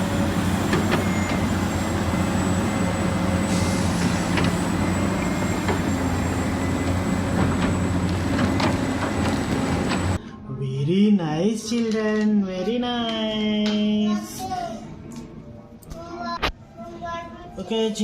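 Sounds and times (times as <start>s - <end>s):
engine-like mechanical drone: 0.0s - 10.2s.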